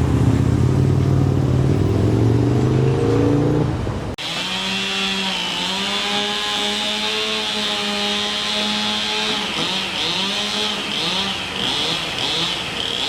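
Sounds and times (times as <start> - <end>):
vehicle engine accelerating: 0.0 - 4.2.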